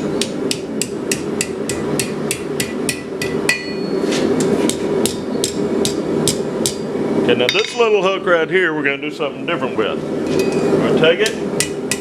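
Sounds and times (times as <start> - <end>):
hammer striking steel on anvil: 0.0 - 6.9, 7.5 - 8.0, 11.6 - 12.0.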